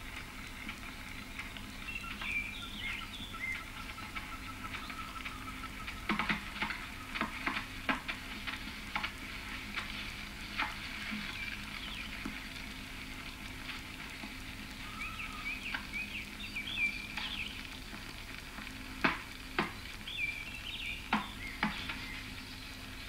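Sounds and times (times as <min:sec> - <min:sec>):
birds chirping: 0:00.0 - 0:23.0
crackling hiss: 0:00.0 - 0:23.0.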